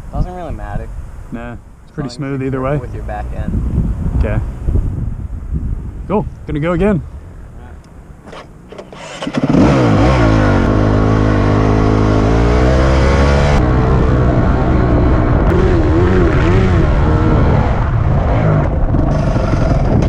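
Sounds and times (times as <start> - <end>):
dirt bike engine accelerating: 8.2 - 20.0.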